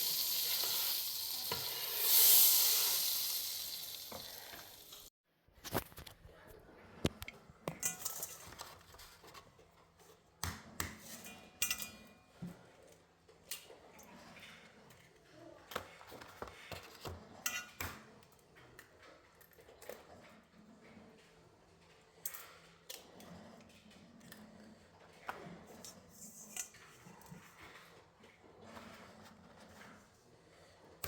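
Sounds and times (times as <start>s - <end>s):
dishes and cutlery clinking: 7.6s - 9.4s, 11.0s - 12.6s, 16.6s - 18.1s.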